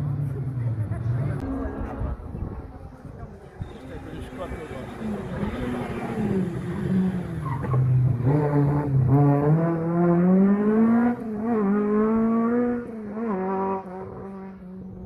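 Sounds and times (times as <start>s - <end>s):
rally car engine revving: 3.8s - 15.0s.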